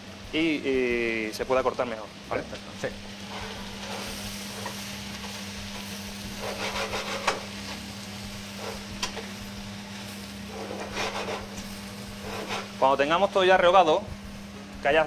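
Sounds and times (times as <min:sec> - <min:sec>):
food sizzling in oil: 0:00.5 - 0:14.5
wooden spoon scraping pot: 0:06.4 - 0:07.4, 0:10.5 - 0:11.6, 0:12.2 - 0:12.8.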